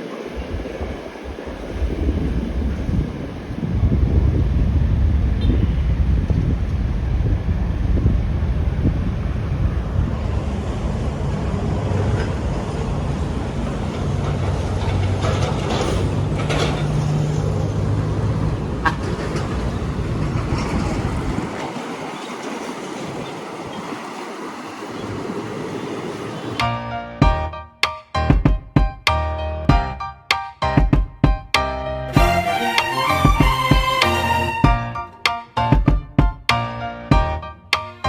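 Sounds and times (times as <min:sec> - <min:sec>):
wind buffeting microphone: 0:00.0 - 0:26.7
low rumble: 0:01.5 - 0:21.5.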